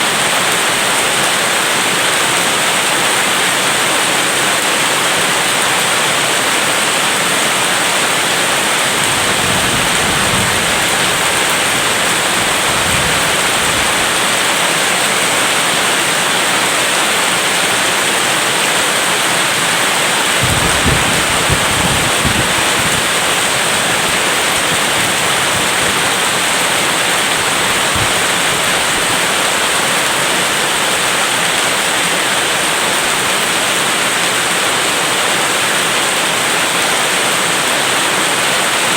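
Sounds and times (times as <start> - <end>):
steady rain: 0.0 - 38.9
low rolls of thunder: 8.5 - 14.6, 20.4 - 29.3.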